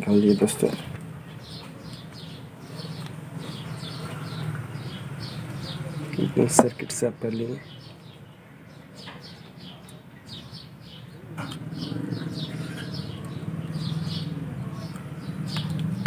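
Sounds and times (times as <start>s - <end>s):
small bird chirping: 0.3s - 16.0s
low steady engine hum: 11.2s - 16.0s.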